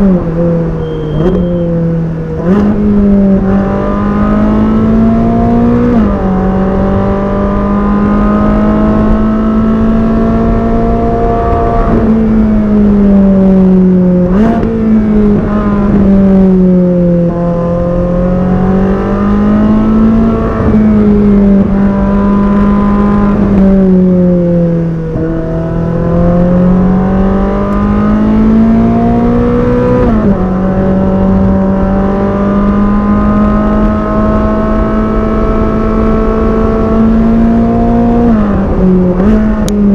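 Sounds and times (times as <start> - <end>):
car engine revving with gear changes: 0.0 - 39.9.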